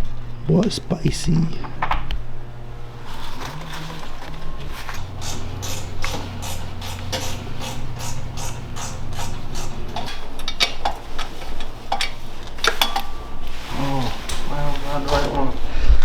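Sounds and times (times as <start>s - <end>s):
low steady hum: 0.0s - 16.0s
metal tools clinking: 1.6s - 15.7s
ratchet wrench clicking: 4.9s - 13.0s.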